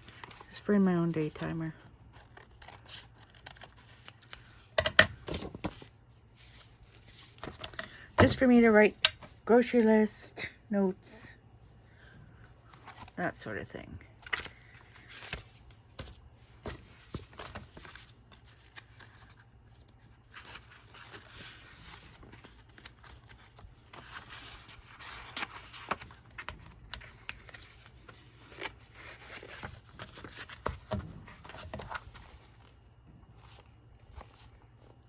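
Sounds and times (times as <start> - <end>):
paper rustling: 14.2 - 35.0.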